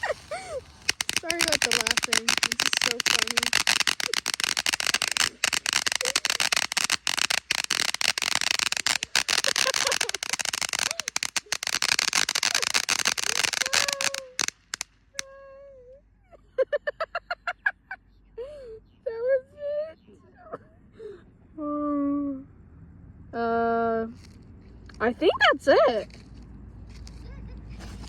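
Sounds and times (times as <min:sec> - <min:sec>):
firework fountain crackling: 0:00.0 - 0:15.3.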